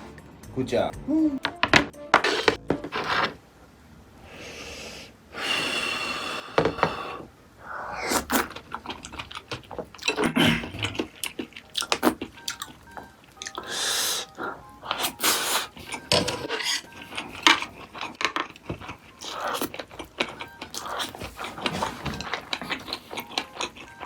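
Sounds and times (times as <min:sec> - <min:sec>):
person chewing: 0:07.9 - 0:24.0.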